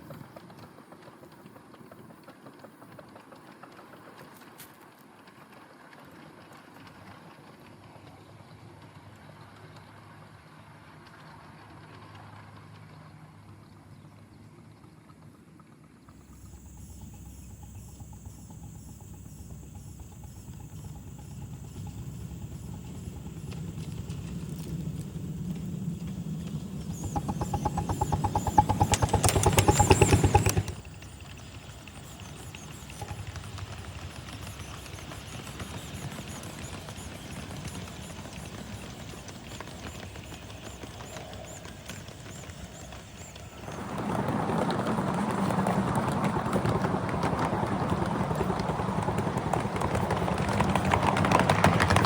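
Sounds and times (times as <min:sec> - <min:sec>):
miniature locomotive exhaust beats: 0:16.1 - 0:52.0.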